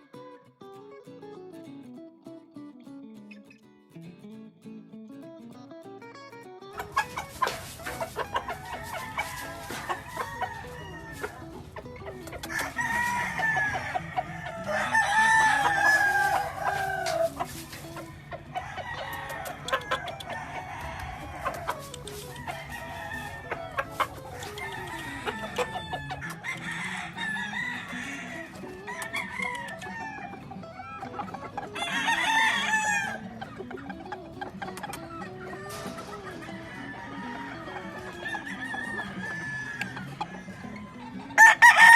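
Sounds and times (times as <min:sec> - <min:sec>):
clucking: 0:06.7 - 0:41.9
roosters crowing: 0:06.8 - 0:33.4, 0:35.1 - 0:41.9
short sharp clicks: 0:21.4 - 0:22.5.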